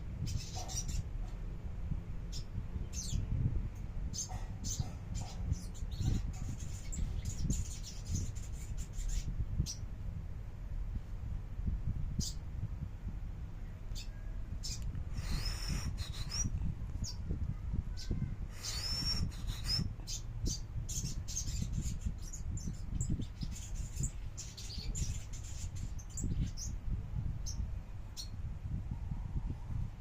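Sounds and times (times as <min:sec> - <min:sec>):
steady low rumble: 0:00.0 - 0:30.0
songbird singing: 0:00.2 - 0:01.4, 0:13.6 - 0:17.3, 0:17.9 - 0:28.4.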